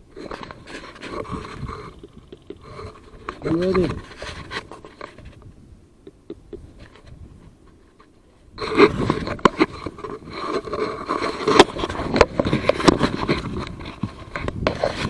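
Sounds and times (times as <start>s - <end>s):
close scraping and rustling: 0.0s - 15.0s
faint clicks: 5.0s - 8.1s.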